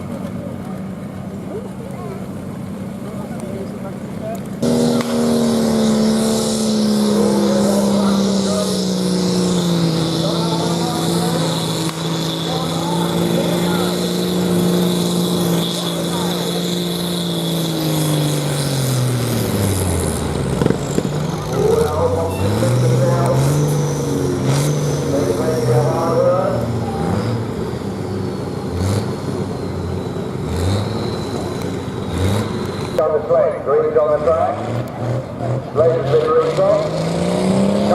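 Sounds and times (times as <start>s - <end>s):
tractor engine running hard: 0.0s - 37.9s
thin high whine: 4.6s - 34.0s.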